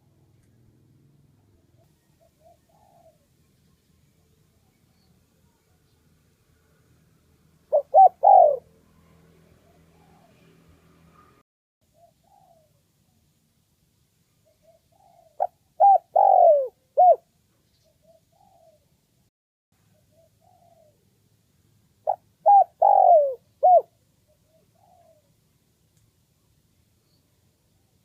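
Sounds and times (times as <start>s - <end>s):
dove cooing: 1.8s - 3.3s, 7.7s - 8.8s, 9.6s - 10.5s, 11.9s - 12.8s, 14.4s - 17.2s, 17.8s - 18.9s, 19.9s - 21.1s, 22.0s - 25.4s.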